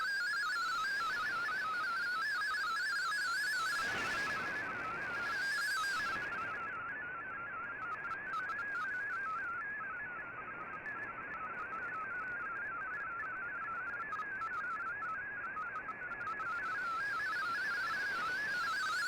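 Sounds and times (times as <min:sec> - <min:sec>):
warbling data signal tones: 0:00.0 - 0:10.2.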